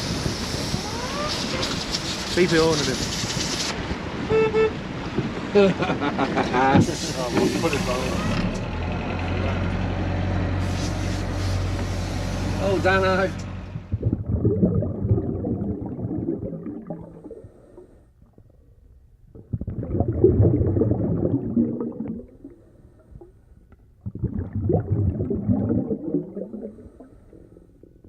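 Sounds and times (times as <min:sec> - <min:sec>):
regulator exhaust bubbles: 0:10.6 - 0:28.0.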